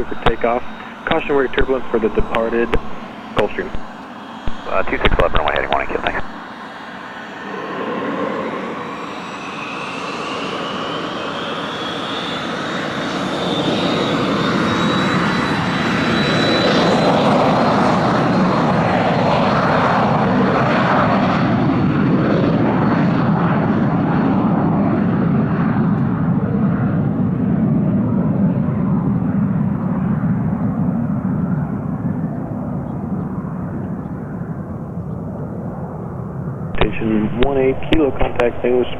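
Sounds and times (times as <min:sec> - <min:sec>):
jet taking off: 0:00.0 - 0:25.9, 0:36.7 - 0:38.9.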